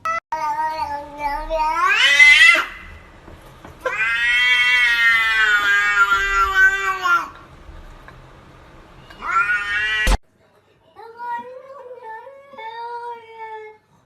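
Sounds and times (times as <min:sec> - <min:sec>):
cat meowing: 0:00.0 - 0:03.1, 0:03.8 - 0:07.4, 0:09.0 - 0:10.2.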